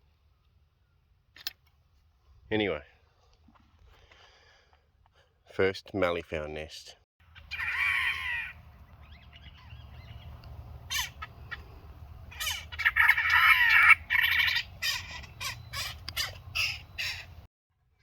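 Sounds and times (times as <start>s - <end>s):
birds giving harsh crow-like calls: 7.2s - 17.5s.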